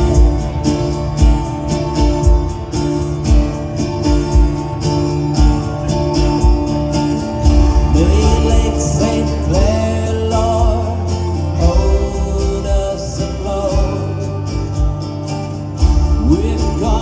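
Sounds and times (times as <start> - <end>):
steady thumping beat: 0.0 - 13.0
gliding melodic line: 0.0 - 17.0
live country band playing: 0.0 - 17.0.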